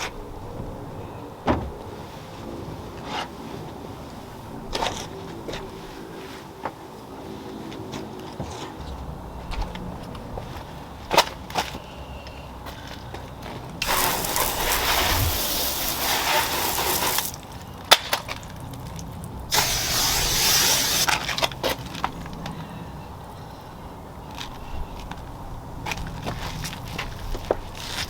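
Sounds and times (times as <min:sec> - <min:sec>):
hissing liquid spray: 0:13.8 - 0:17.4, 0:19.5 - 0:21.2.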